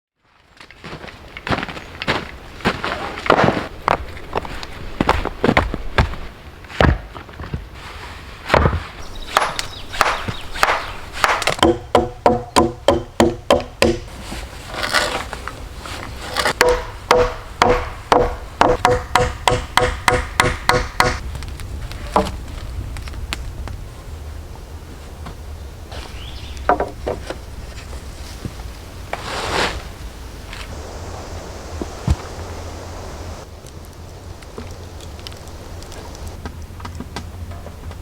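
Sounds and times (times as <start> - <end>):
hand tools striking wood: 8.5 - 14.1, 16.4 - 21.2, 26.7 - 27.4.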